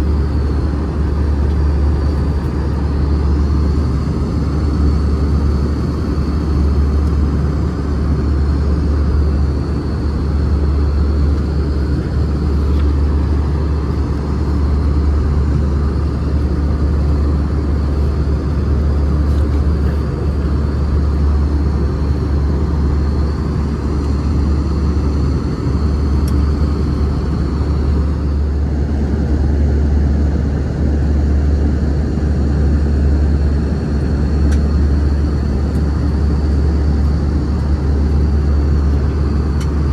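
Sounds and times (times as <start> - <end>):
engine and airflow rumble: 0.0 - 39.9.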